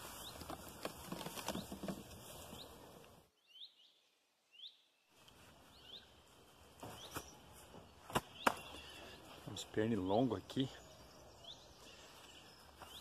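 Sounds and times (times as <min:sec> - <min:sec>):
small bird chirping: 0:03.4 - 0:06.2.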